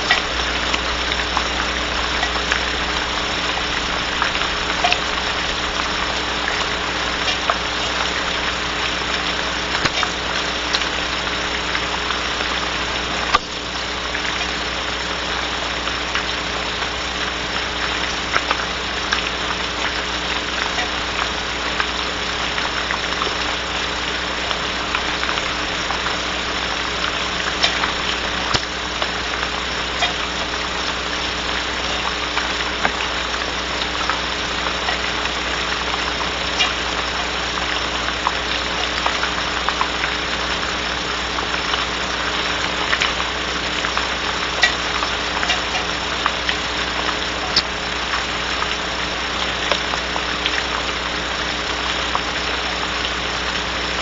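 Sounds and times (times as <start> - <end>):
water drips clicking: 0.0 - 53.7
low electrical hum: 0.0 - 54.0
rain on a wooden box: 0.0 - 54.0.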